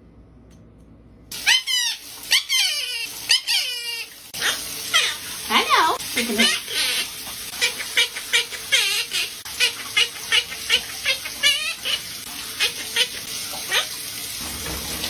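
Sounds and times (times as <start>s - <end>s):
parrot squeaky chirps: 1.4s - 5.2s, 6.4s - 12.0s, 12.6s - 13.9s.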